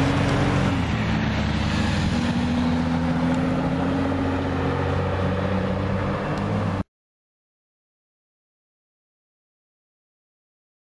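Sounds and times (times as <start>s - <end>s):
car engine driving by: 0.0s - 6.8s.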